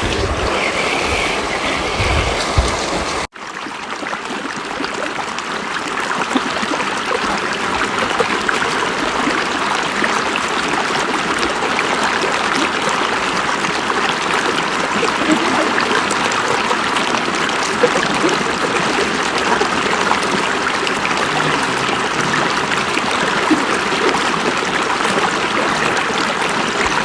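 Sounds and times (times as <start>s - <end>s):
river water flowing: 0.0s - 3.3s, 5.3s - 27.0s.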